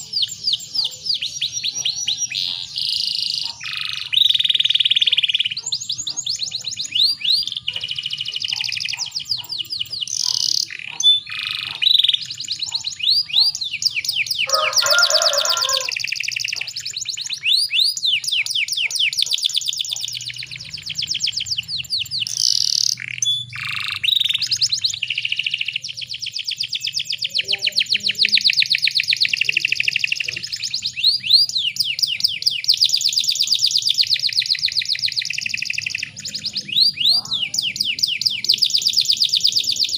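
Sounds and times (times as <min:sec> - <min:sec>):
canary singing trills: 0:00.0 - 0:39.9
harsh rasping bird phrase: 0:00.0 - 0:39.9.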